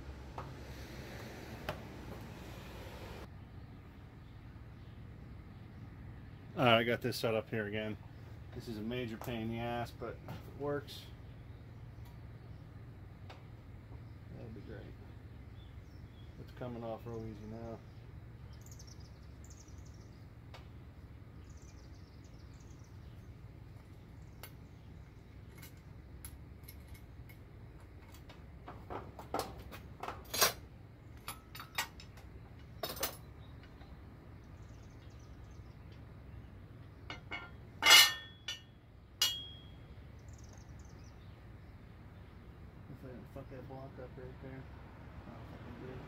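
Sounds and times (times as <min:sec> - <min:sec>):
metal clinks of tools and parts: 0:25.5 - 0:27.4, 0:31.2 - 0:33.3, 0:37.1 - 0:39.8
ringing metal clank: 0:37.1 - 0:39.8.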